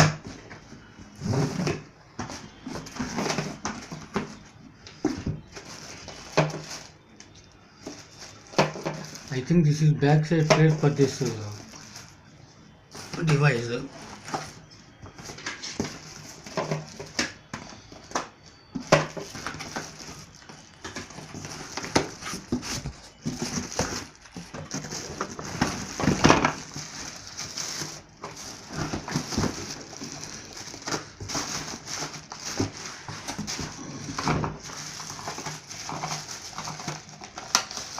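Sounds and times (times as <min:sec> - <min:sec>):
packaging rustling and crinkling: 0:00.0 - 0:37.9
plastic parts clacking: 0:13.0 - 0:37.9.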